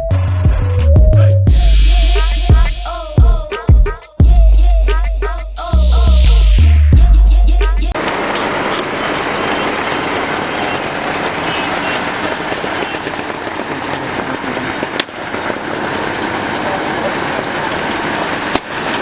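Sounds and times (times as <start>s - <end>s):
music: 0.0s - 8.0s
motor vehicle noise: 7.9s - 19.0s.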